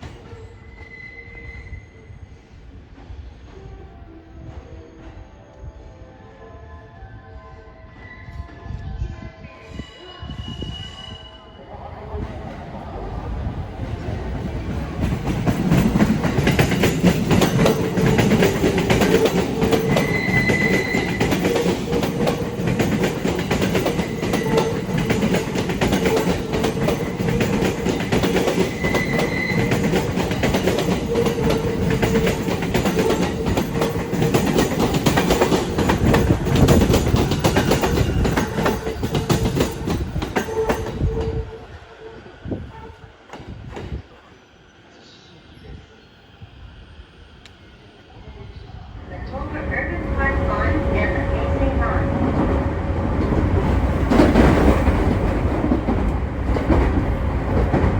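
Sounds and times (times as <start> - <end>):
electric train hum: 0.0 - 57.9
train wheels clacking over rail joints: 14.8 - 41.5.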